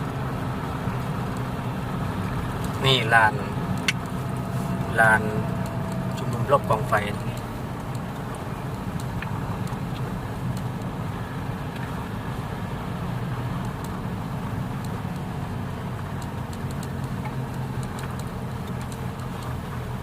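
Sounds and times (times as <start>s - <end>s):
car engine and road noise: 0.0s - 20.0s
faint light clicks: 7.1s - 10.9s, 16.0s - 19.6s.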